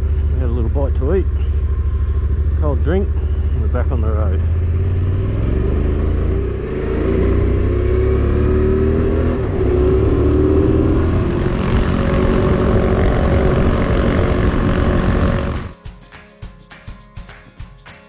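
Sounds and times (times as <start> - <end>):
motorcycle accelerating: 0.0 - 15.7
music with steady beat: 15.4 - 18.0.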